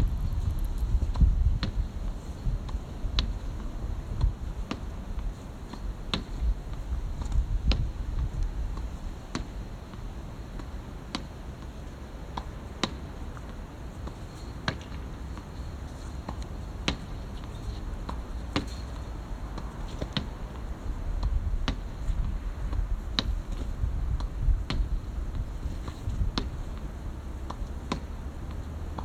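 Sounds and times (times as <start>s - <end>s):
steady low rumble: 0.0s - 10.2s, 16.7s - 29.0s.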